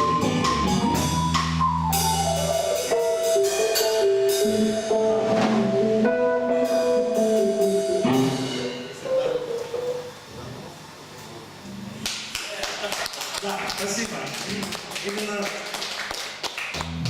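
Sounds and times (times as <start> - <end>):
drum kit beat: 0.0 - 9.6, 16.3 - 17.0
held pitched instrument notes: 0.0 - 10.3.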